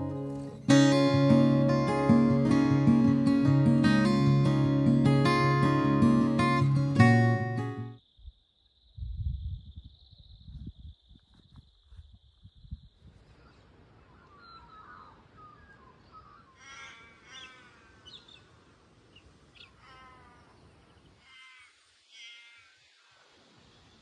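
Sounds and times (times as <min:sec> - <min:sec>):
harsh drawn-out bird calls: 0:13.4 - 0:23.2.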